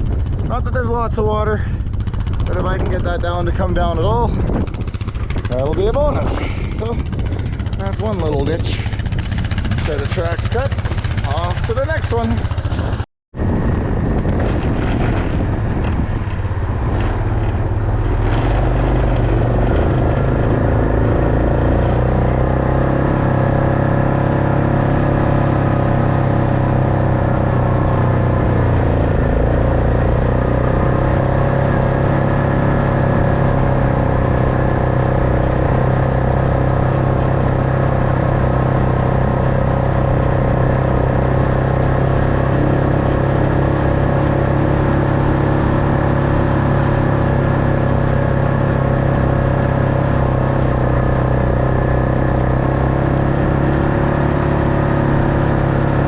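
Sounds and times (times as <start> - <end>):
vehicle engine running: 0.0 - 56.0
knocks and rattles: 4.2 - 13.0, 14.2 - 20.8.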